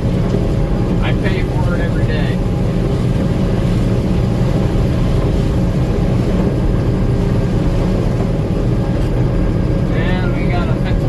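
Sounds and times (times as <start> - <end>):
combine harvester engine drone: 0.0 - 11.0.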